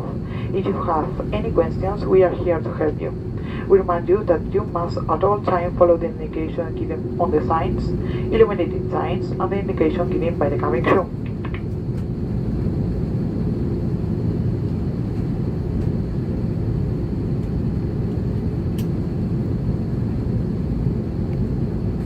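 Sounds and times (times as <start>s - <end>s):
aircraft cabin rumble: 0.0s - 22.0s
small click: 18.8s - 19.0s.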